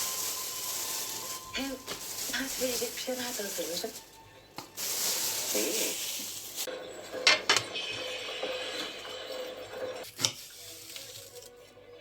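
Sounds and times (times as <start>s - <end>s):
utensils clinking against dishes: 5.4s - 10.5s.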